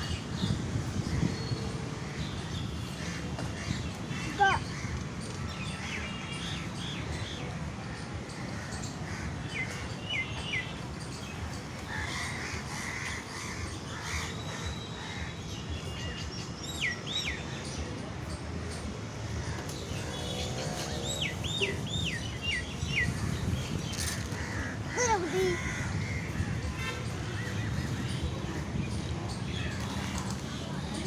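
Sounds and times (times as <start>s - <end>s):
birds chirping and whistling: 0.1s - 31.0s
crows cawing: 24.3s - 26.8s.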